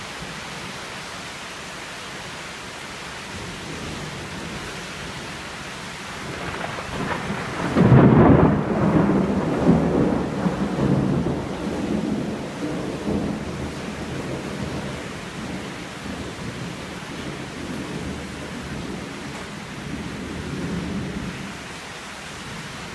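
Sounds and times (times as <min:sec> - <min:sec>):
rain hissing: 0:00.0 - 0:22.9
thunder rumbling: 0:06.2 - 0:21.6.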